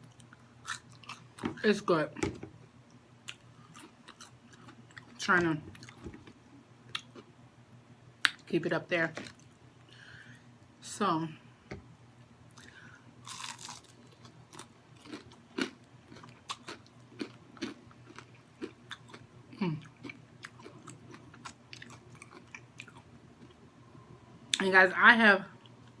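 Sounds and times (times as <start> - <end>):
chewing crunchy food: 0.0 - 1.4, 2.9 - 7.3, 12.5 - 23.6.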